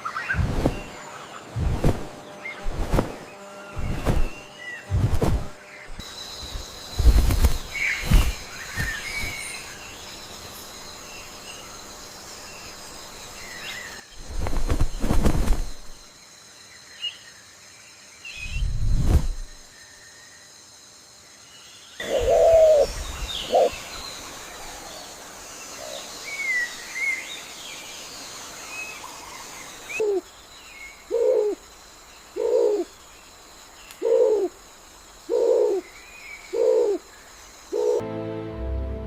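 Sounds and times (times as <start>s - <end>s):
birds chirping and twittering: 0.0s - 16.1s, 21.5s - 38.0s
bird low cooing call: 22.0s - 23.8s, 30.0s - 30.3s, 31.1s - 31.6s, 32.4s - 32.9s, 34.0s - 34.6s, 35.3s - 37.1s, 37.7s - 38.0s.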